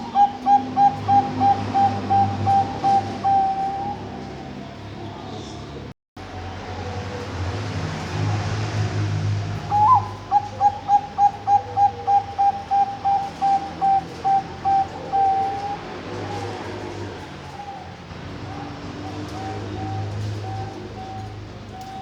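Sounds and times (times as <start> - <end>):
zebra dove cooing: 0.0 - 4.6, 9.7 - 22.0.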